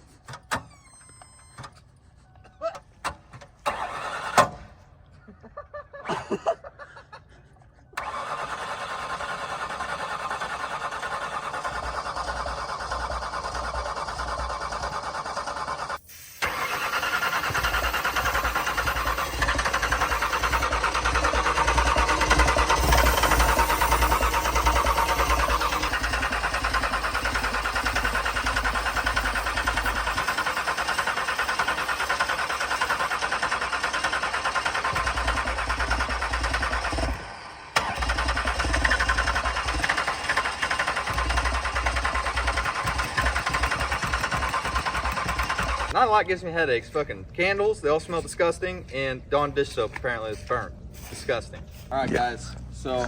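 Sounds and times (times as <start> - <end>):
car engine clattering: 10.2 - 46.0.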